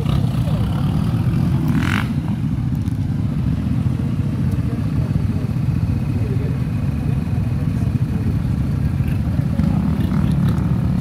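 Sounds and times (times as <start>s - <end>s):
off-road vehicle engines rumbling: 0.0s - 11.0s.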